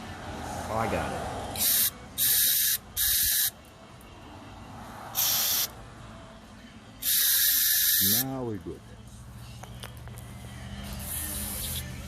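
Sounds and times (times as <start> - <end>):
aerosol spray bursts: 1.6 - 3.5, 5.2 - 5.7, 7.0 - 8.2.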